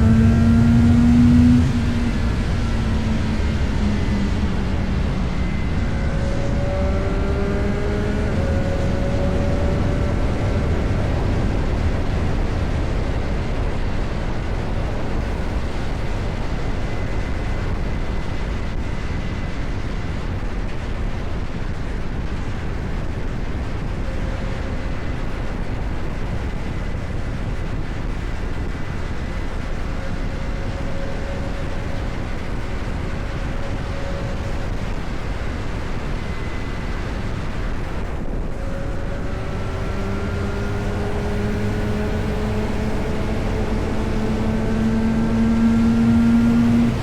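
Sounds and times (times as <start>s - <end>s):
motorcycle engine running: 0.0s - 14.3s
wind on microphone: 0.0s - 47.0s.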